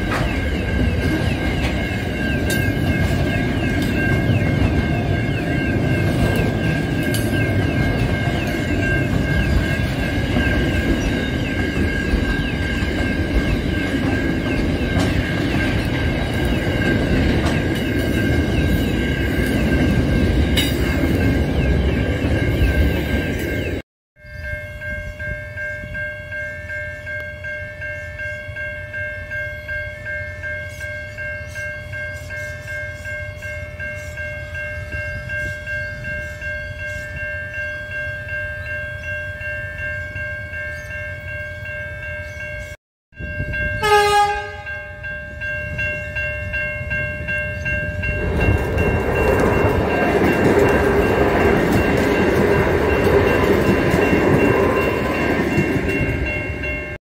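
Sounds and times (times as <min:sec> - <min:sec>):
level crossing warning bells: 0:00.0 - 0:57.0
train passing with roar: 0:00.0 - 0:57.0
train horn blast: 0:43.8 - 0:45.0.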